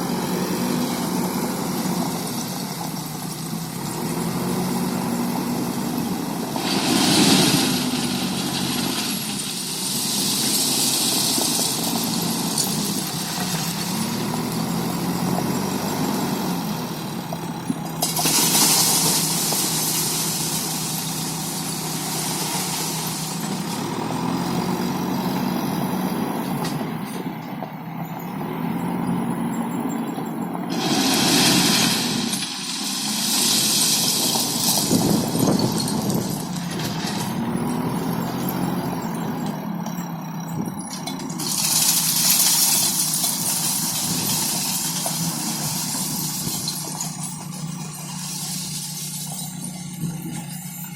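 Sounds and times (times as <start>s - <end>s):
diesel engine running: 0.0s - 50.9s
loud hiss: 30.7s - 35.0s.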